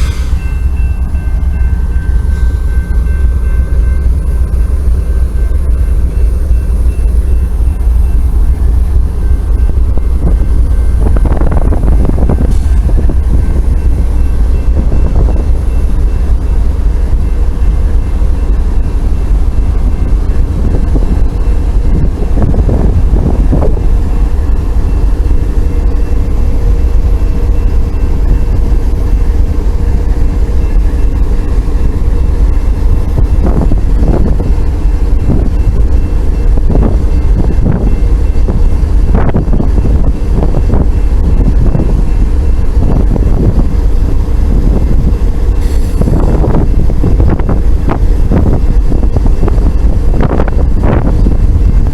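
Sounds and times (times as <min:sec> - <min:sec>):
diesel locomotives running: 0:00.0 - 0:51.9
wind on microphone: 0:09.4 - 0:16.4, 0:19.0 - 0:25.6, 0:31.6 - 0:51.9.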